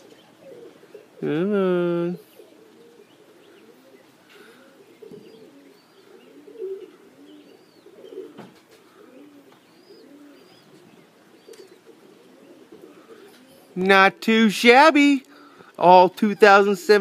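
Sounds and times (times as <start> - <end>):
pigeons cooing: 0.0 - 14.2, 15.2 - 17.0.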